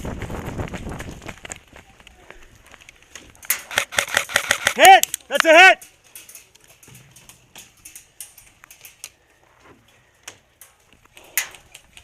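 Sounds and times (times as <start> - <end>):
sharp clicks and ticks: 1.3 - 9.2.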